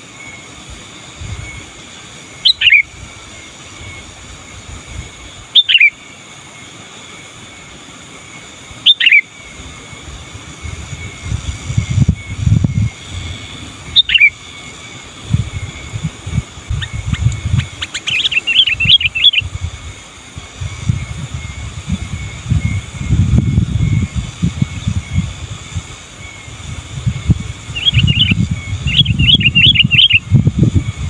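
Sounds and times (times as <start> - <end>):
bird calling and chattering: 1.2 - 4.2, 5.1 - 6.2, 8.7 - 10.0, 10.7 - 25.3, 26.0 - 30.4
low rumbling noise: 7.2 - 31.0.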